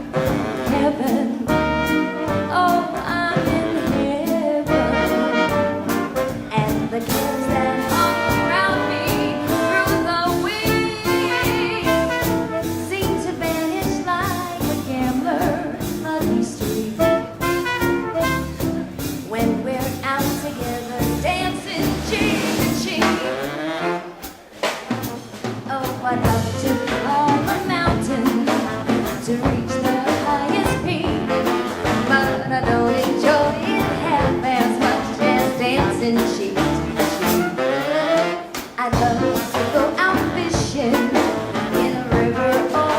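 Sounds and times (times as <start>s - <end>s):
saxophone: 0.0s - 19.8s, 20.5s - 24.5s, 26.2s - 42.9s
swing band playing: 0.0s - 42.9s.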